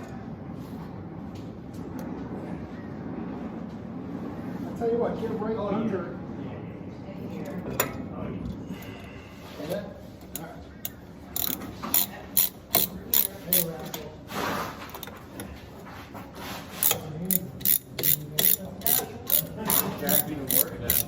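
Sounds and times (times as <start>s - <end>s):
hand ratchet clicking: 10.3s - 14.0s, 16.8s - 21.0s.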